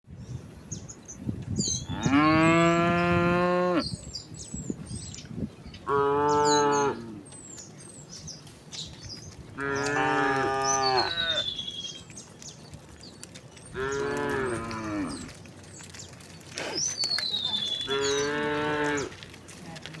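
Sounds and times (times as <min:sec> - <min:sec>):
cows mooing: 0:01.9 - 0:03.9, 0:05.9 - 0:07.3, 0:09.6 - 0:11.6, 0:13.7 - 0:15.4, 0:17.5 - 0:19.3.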